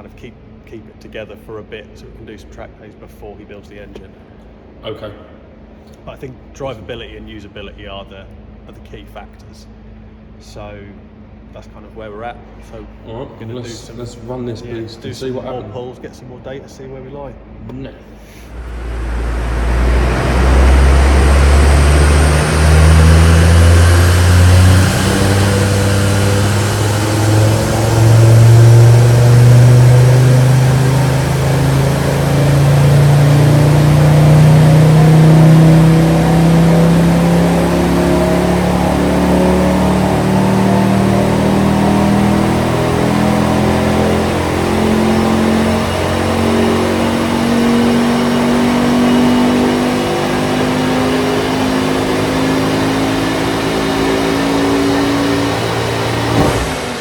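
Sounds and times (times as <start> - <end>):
turbocharged car engine revving: 18.5 - 57.0.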